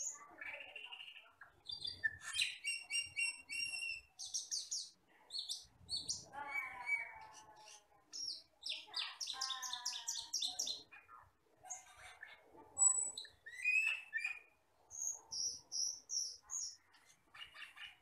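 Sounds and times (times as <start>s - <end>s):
starling singing: 0.0s - 18.0s.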